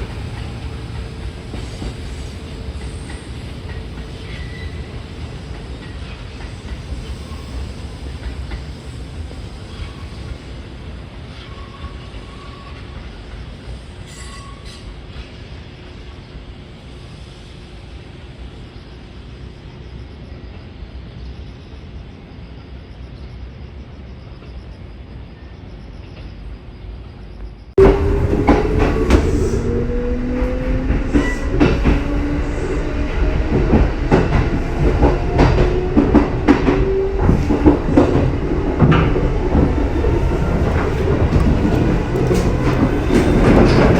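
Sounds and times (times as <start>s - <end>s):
train low rumble: 0.0s - 43.9s
train motor whine: 27.8s - 43.9s
wheel clicks on rail joints: 33.7s - 43.9s.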